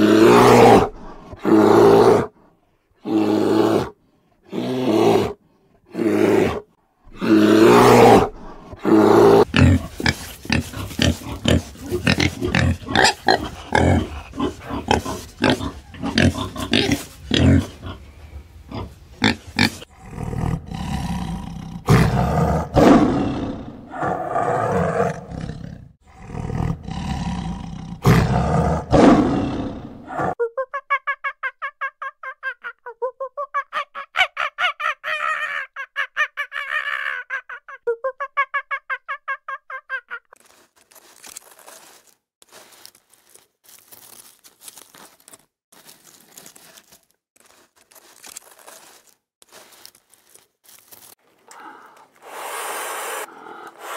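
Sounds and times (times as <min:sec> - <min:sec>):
bear roaring: 0:00.0 - 0:02.3, 0:03.0 - 0:18.0, 0:18.7 - 0:30.4
tiger growling: 0:03.1 - 0:30.4
pig grunts: 0:05.9 - 0:18.0, 0:18.7 - 0:30.4.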